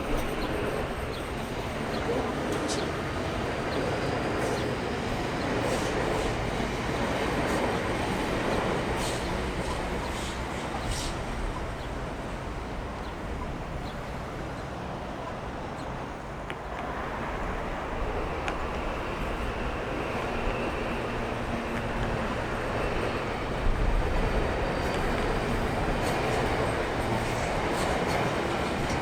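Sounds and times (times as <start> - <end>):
train rumbling past: 0.0 - 29.0.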